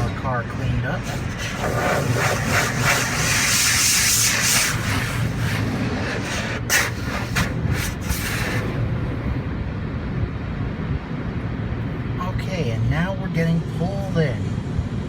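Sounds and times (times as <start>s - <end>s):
sharp spatters: 0.0s - 8.7s
spray hissing onto car: 0.0s - 8.8s
low rumble: 0.0s - 15.0s.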